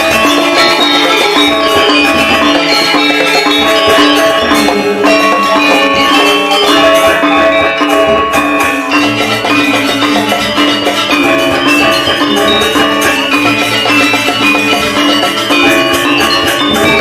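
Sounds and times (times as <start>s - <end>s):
metallophones ringing: 0.0s - 17.0s.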